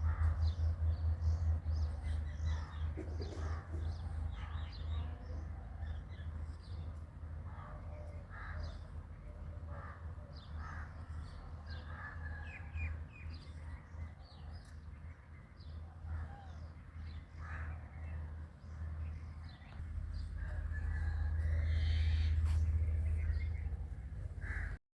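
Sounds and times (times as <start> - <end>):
steady low hum: 0.0 - 8.2, 15.9 - 24.8
birds chirping: 0.0 - 24.8
crow-like caws: 24.4 - 24.8.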